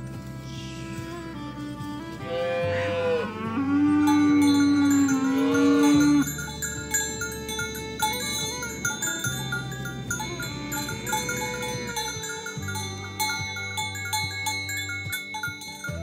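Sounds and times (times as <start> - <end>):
ox mooing: 2.2 - 14.5
chiming bell-like tones: 3.9 - 16.0.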